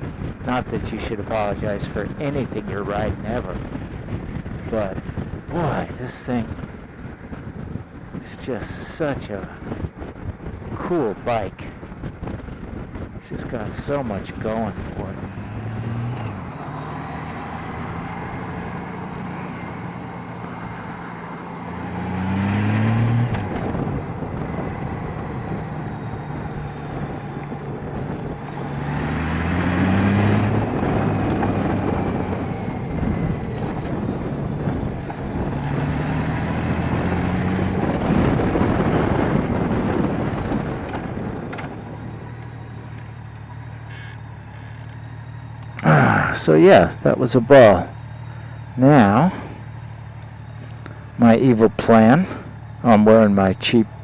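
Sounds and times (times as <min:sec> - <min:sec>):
wind and road noise: 0:00.0 - 0:54.0
motorcycle engine revving: 0:11.6 - 0:54.0.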